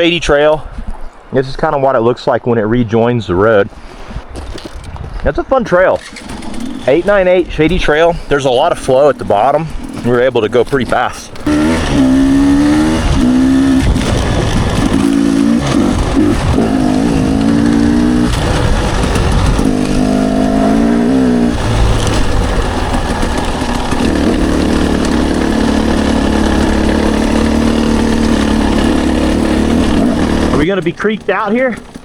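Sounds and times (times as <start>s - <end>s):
dirt bike engine revving: 6.0s - 7.3s, 11.4s - 32.0s.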